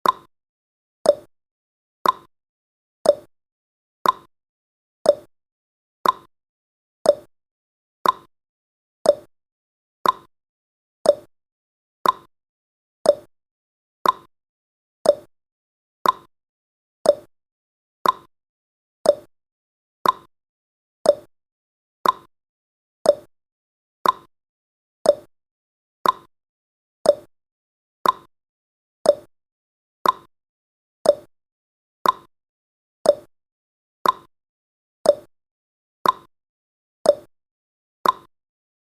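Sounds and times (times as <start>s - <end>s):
clock ticking: 2.0s - 2.3s, 4.0s - 4.3s, 6.0s - 6.3s, 8.0s - 8.3s, 10.0s - 10.3s, 12.0s - 12.3s, 14.0s - 14.3s, 15.1s - 15.3s, 16.0s - 16.3s, 17.1s - 17.3s, 18.0s - 18.3s, 19.1s - 19.3s, 20.0s - 20.3s, 21.1s - 21.3s, 22.0s - 22.3s, 24.0s - 24.3s, 26.0s - 26.3s, 28.0s - 28.3s, 29.1s - 29.3s, 30.0s - 30.3s, 31.1s - 31.3s, 32.0s - 32.3s, 33.1s - 33.3s, 34.0s - 34.3s, 35.1s - 35.3s, 36.0s - 36.3s, 38.0s - 38.3s.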